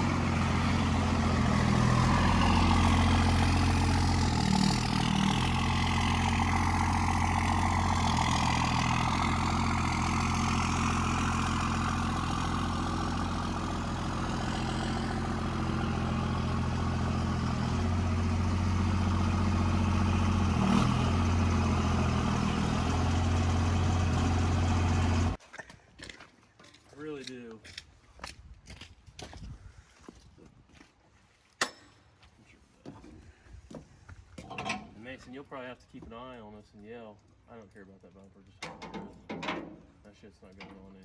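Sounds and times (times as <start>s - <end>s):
truck engine idling: 0.0s - 25.4s.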